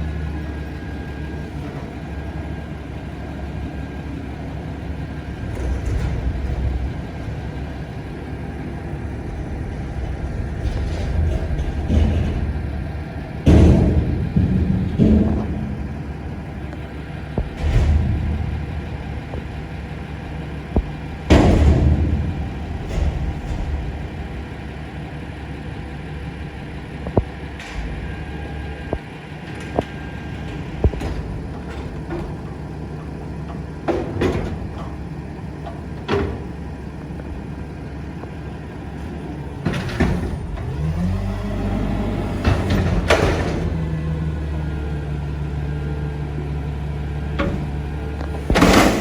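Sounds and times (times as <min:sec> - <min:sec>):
diesel engine running: 0:00.0 - 0:49.0
metal bangs and clanks: 0:04.8 - 0:37.0, 0:42.0 - 0:49.0.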